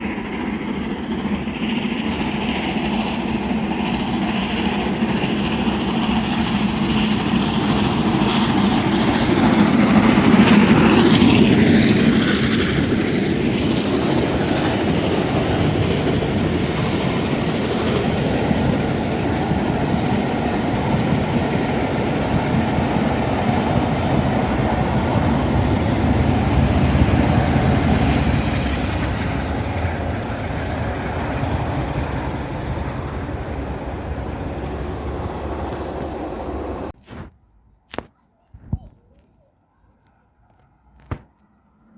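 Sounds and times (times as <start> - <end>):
steam train passing: 0.0 - 37.0.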